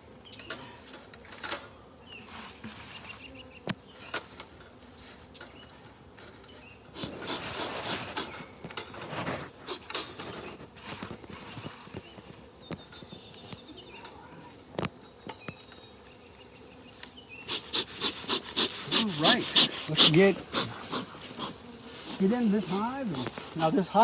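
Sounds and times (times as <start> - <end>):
honeybees buzzing: 0.0 - 24.0
rustling noise: 0.8 - 3.3, 4.0 - 13.6, 18.0 - 24.0.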